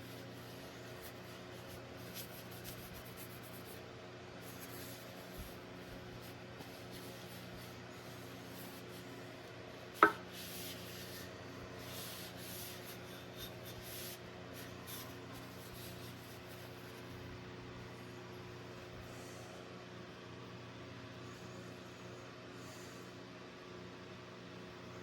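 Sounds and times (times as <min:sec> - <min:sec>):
rubbing and scraping strokes: 0:00.0 - 0:17.2.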